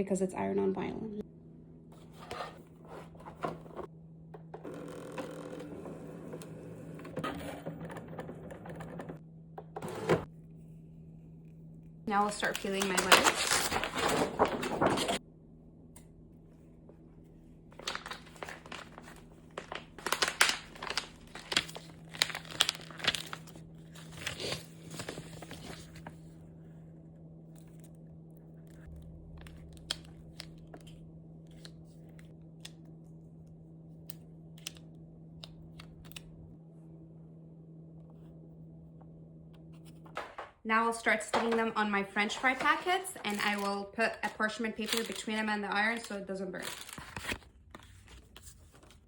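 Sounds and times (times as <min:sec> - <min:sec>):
vinyl sheet crinkling and tearing: 0:12.2 - 0:15.2, 0:17.7 - 0:26.2, 0:42.3 - 0:49.0.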